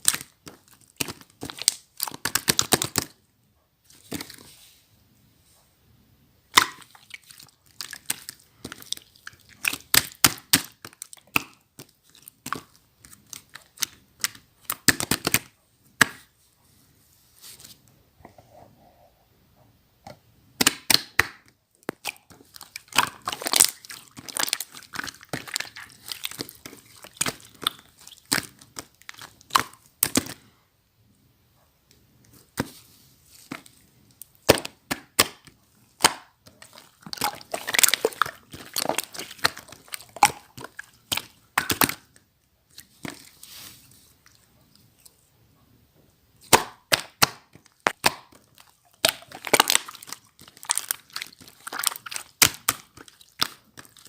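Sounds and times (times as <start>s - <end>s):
slime crackling and popping: 0.0s - 3.2s, 6.5s - 16.3s, 20.6s - 30.4s, 33.4s - 43.4s, 46.4s - 54.0s.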